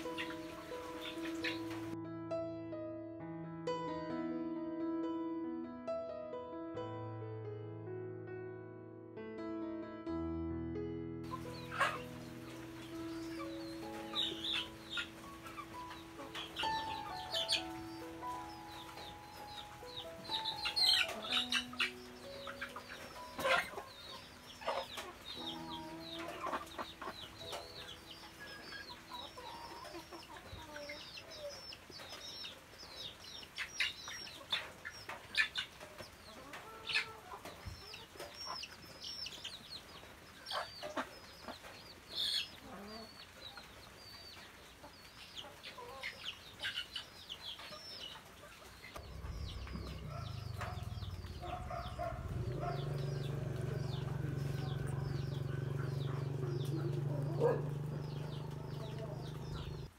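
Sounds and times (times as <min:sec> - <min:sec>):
bird chirping high falling chirps: 0:49.0 - 0:59.9.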